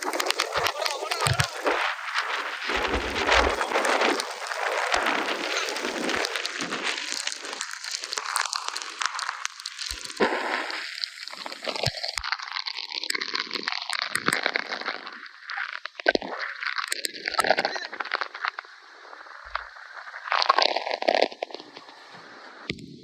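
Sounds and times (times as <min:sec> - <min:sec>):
heavy rain on microphone: 0:00.0 - 0:16.1.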